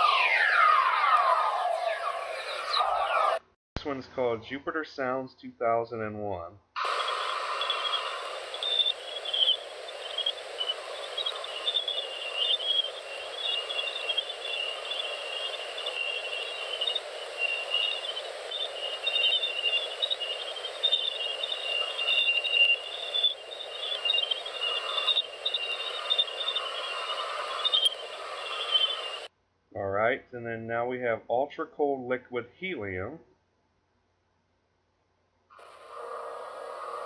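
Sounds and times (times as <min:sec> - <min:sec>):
high-pitched twittering chirps: 0:00.0 - 0:03.4, 0:06.8 - 0:29.3
steady hiss: 0:06.8 - 0:29.3, 0:35.6 - 0:37.0.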